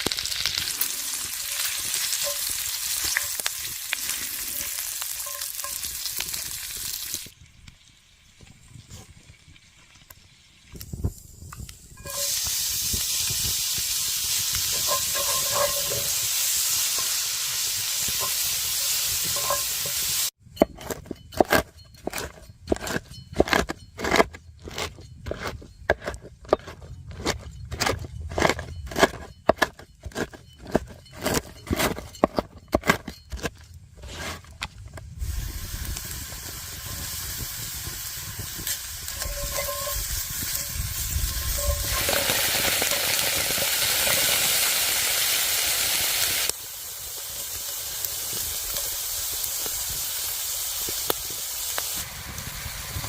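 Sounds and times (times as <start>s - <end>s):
food sizzling in a pan: 0.0s - 7.3s, 11.3s - 20.4s, 35.2s - 53.0s.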